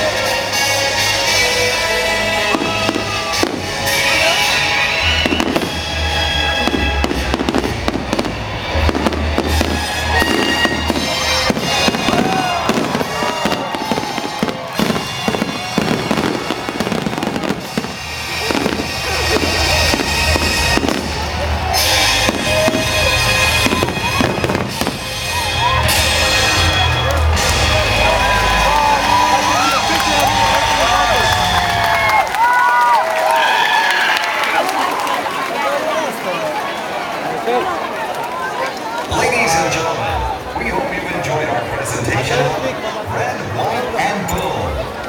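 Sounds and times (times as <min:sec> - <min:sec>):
music playing: 0:00.0 - 0:32.4
fireworks booming: 0:02.4 - 0:28.2.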